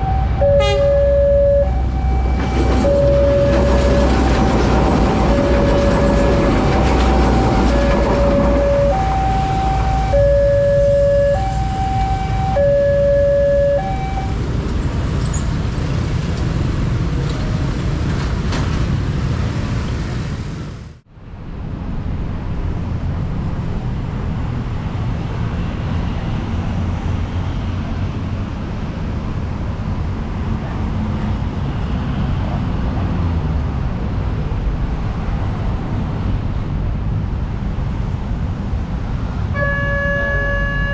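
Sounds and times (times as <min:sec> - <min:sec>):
level crossing warning bell: 0:00.0 - 0:14.4, 0:39.6 - 0:40.9
train passing rumble: 0:00.0 - 0:29.1.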